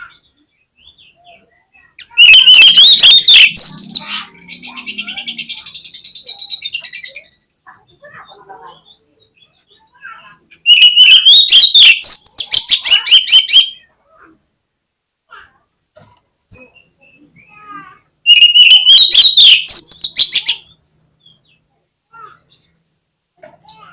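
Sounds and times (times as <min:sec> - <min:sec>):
bird singing rapid harsh notes: 0:00.0 - 0:13.9, 0:16.7 - 0:21.6
buzzy bird trill: 0:01.8 - 0:09.0, 0:09.8 - 0:13.9, 0:18.3 - 0:20.7.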